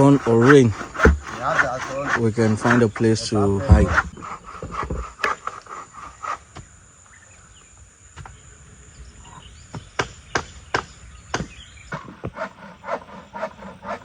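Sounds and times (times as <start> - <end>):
tool striking wood: 0.4 - 2.8, 3.6 - 5.6, 9.7 - 11.6.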